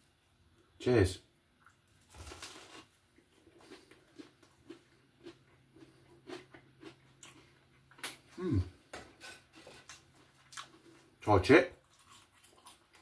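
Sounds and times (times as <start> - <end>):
person chewing crusty bread: 1.6 - 11.2, 11.8 - 13.0
short vocal sound: 8.3 - 8.8.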